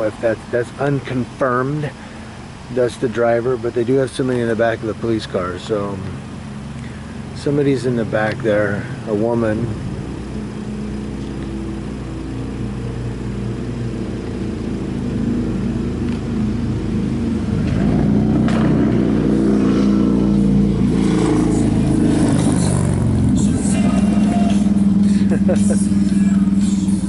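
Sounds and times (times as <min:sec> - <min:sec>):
car engine humming: 0:00.0 - 0:27.0.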